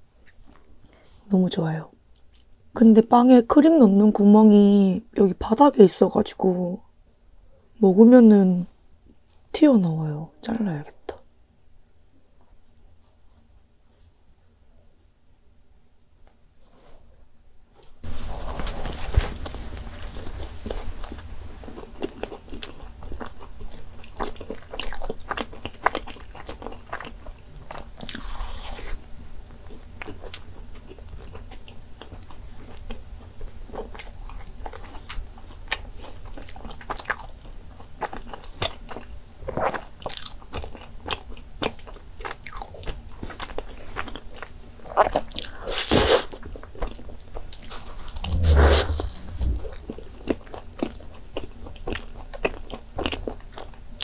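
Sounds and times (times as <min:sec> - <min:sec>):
chewing soft pastry: 0:00.2 - 0:01.2, 0:02.1 - 0:02.7, 0:17.8 - 0:54.0.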